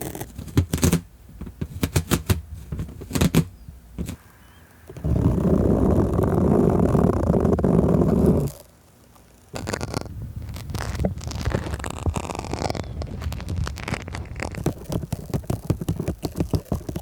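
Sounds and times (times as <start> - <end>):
crackly scratching and tapping: 0.0 - 4.2, 4.9 - 17.0
low rubbing on microphone: 4.0 - 8.6, 9.5 - 17.0.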